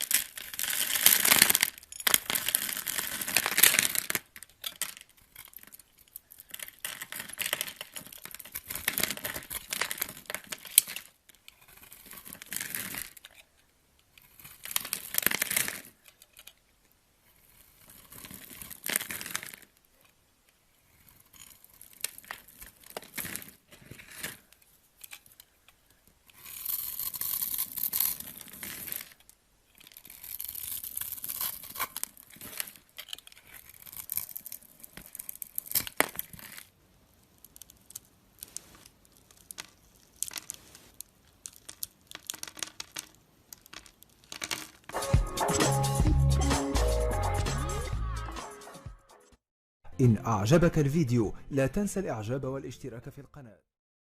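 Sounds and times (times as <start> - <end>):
blade scraping through soap: 11.4 - 13.2, 17.2 - 19.3, 26.3 - 29.2, 29.8 - 36.6.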